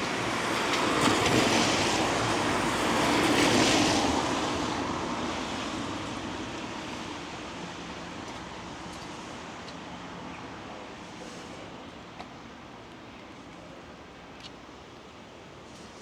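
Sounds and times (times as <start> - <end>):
tyres hissing on wet road: 10.9 - 12.1.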